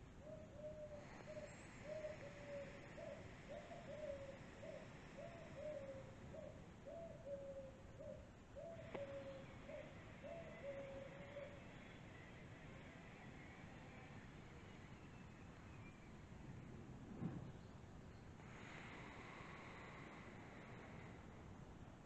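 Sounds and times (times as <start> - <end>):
bird calling low notes: 0.2 - 16.1
faint click: 8.9 - 9.1.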